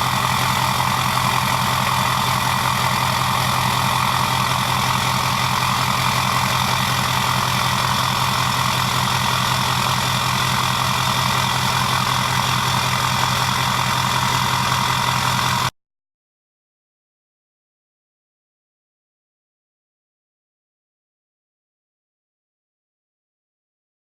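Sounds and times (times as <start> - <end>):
diesel engine idling: 0.0 - 15.7
turbo high whine: 0.0 - 15.7.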